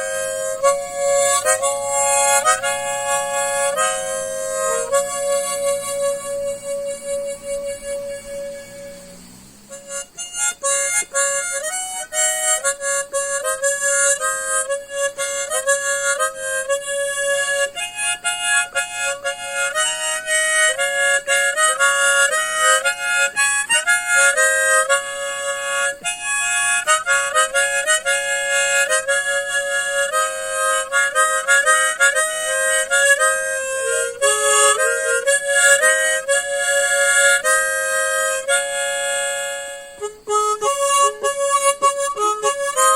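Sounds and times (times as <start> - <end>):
harmonica playing slow melody: 0.0 - 42.9.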